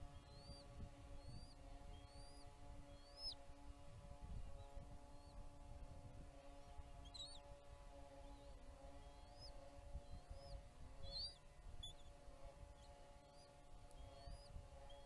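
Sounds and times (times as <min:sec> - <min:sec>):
electrical hum: 0:00.0 - 0:15.0
high-pitched bird chirps: 0:11.1 - 0:12.1.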